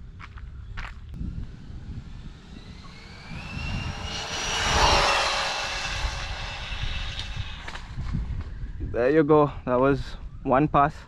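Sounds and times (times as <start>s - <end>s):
wind rumble on microphone: 0.0s - 11.0s
rc car motor whining: 1.2s - 8.4s.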